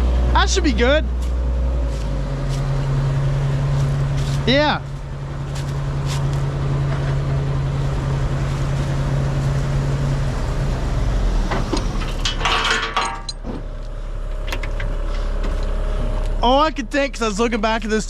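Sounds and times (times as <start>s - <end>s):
dump truck engine running: 0.0s - 18.0s.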